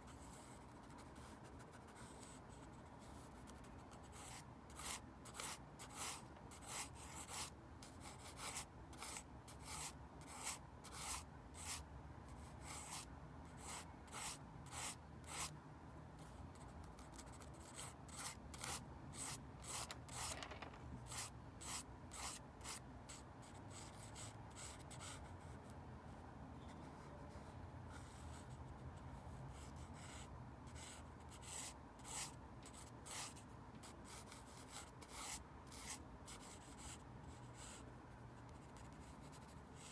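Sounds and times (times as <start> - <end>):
pencil scratching on paper: 0.0 - 11.8, 12.4 - 15.5, 16.6 - 22.8, 29.6 - 37.8, 38.4 - 39.9.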